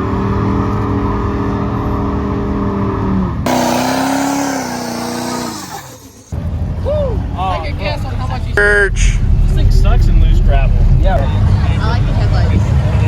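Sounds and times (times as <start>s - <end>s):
second engine at high revs: 0.0s - 6.5s
truck engine at high revs: 2.6s - 6.5s.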